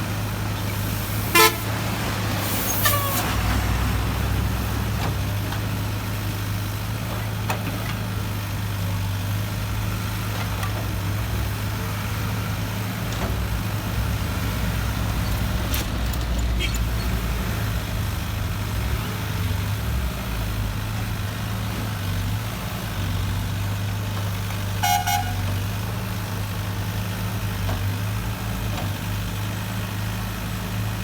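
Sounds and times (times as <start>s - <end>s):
diesel machinery droning: 0.0s - 31.0s
vehicle horn toot: 1.2s - 1.8s, 16.6s - 16.8s, 24.8s - 25.5s.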